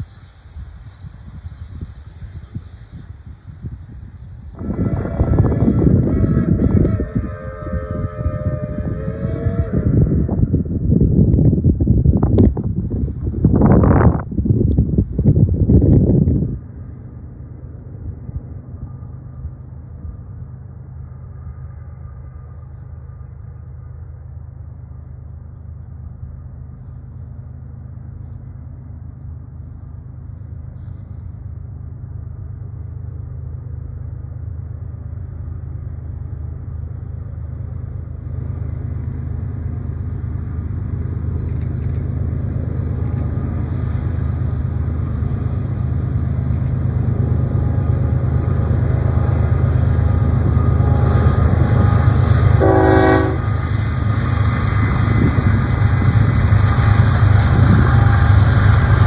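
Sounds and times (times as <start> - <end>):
hiss: 0.0 - 5.4
train engine rumble: 0.0 - 59.0
train horn blast: 4.5 - 10.7, 49.1 - 53.7.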